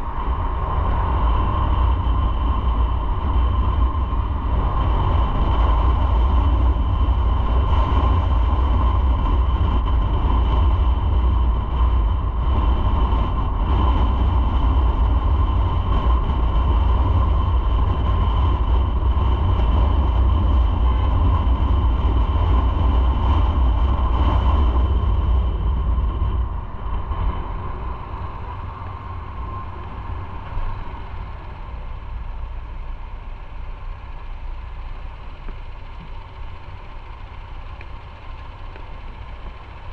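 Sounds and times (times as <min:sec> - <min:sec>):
motorcycle engine rumble: 0:00.0 - 0:39.9
wind noise: 0:00.0 - 0:39.9.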